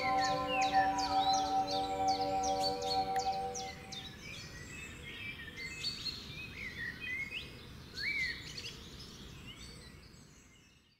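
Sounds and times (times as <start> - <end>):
birds chirping and whistling: 0.0 - 5.0.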